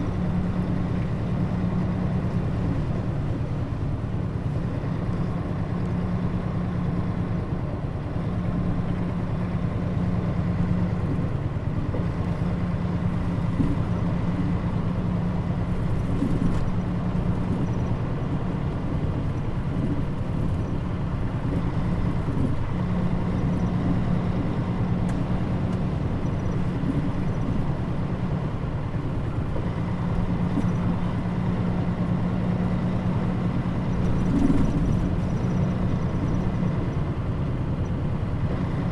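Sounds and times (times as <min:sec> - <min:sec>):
bus engine and road drone: 0:00.0 - 0:38.9.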